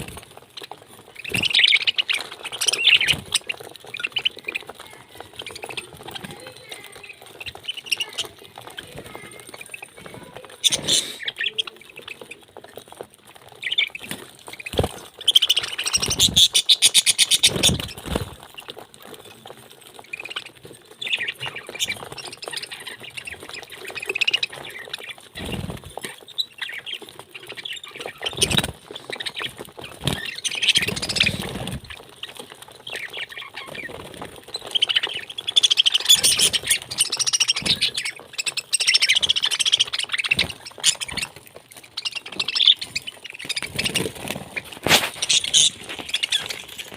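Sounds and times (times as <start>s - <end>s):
parrot squawking and chattering: 5.0s - 11.8s, 42.0s - 46.9s.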